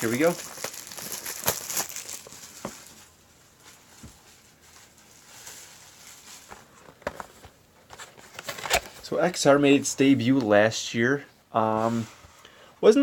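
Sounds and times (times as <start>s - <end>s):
taps and rustles of card packs: 0.0s - 3.0s, 6.2s - 9.1s
low hiss: 9.0s - 13.0s.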